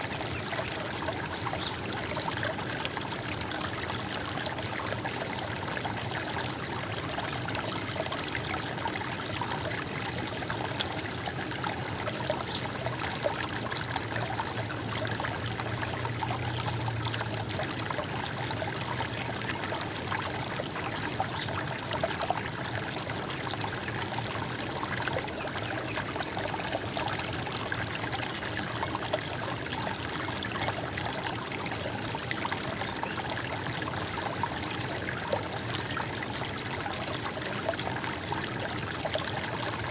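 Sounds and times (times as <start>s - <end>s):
stream water trickling and splashing: 0.0s - 39.9s.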